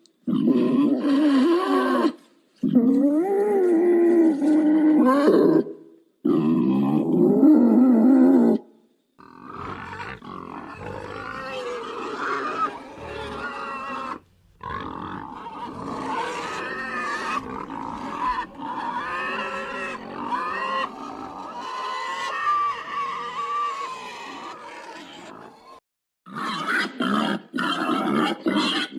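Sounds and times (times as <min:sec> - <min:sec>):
pig calls: 0:09.2 - 0:28.9
pigs grunting: 0:09.2 - 0:28.9.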